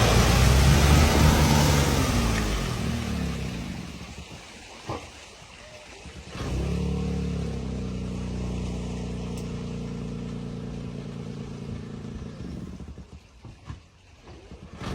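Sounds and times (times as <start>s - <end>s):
vehicle engine droning: 0.0s - 4.4s, 6.2s - 13.2s.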